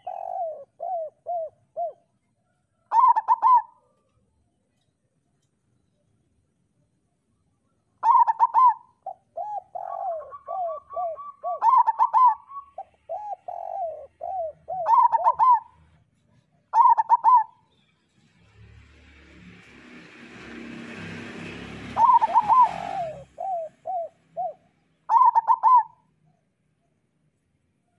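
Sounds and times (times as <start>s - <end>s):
dove cooing: 0.0s - 4.1s, 8.0s - 16.0s, 16.7s - 17.6s, 21.9s - 26.1s.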